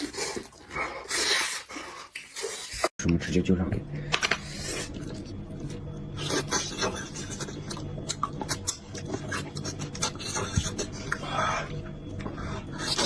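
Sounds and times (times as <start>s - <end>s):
chewing and mouth smacking: 6.2s - 11.2s.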